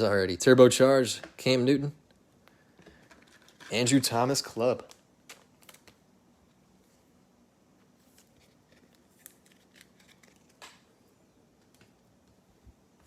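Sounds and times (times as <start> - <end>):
trading cards handled and flipped: 4.8 - 7.0, 7.8 - 11.0.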